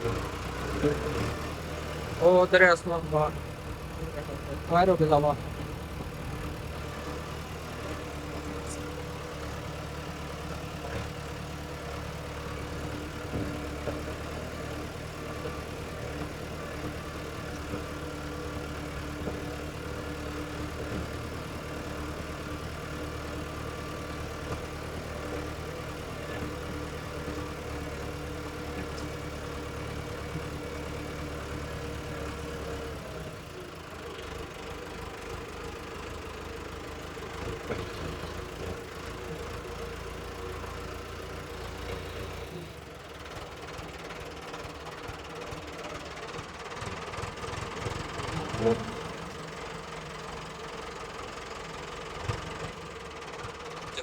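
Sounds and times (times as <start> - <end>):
diesel tractor engine idling: 0.0 - 54.0.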